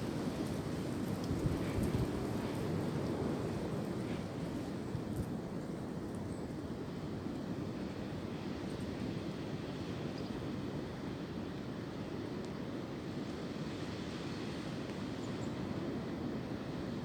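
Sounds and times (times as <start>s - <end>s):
wind through tree branches: 0.0s - 17.0s.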